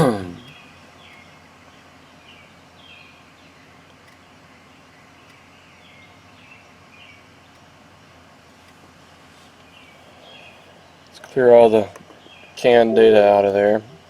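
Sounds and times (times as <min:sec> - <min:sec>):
low background hiss: 0:00.0 - 0:14.0
faint bird chirps: 0:00.4 - 0:07.7, 0:09.5 - 0:11.2.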